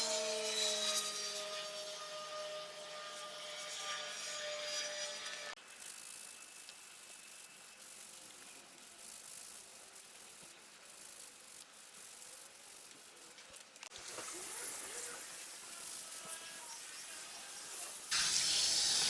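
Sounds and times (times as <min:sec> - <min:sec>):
running water from hose: 0:05.6 - 0:19.0.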